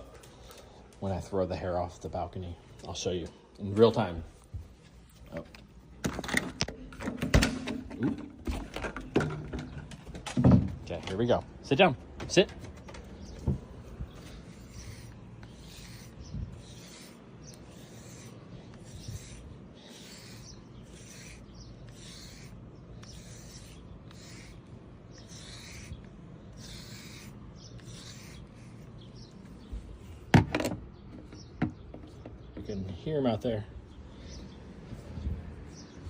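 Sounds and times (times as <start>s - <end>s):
brush rasping through dog fur: 13.1s - 30.2s.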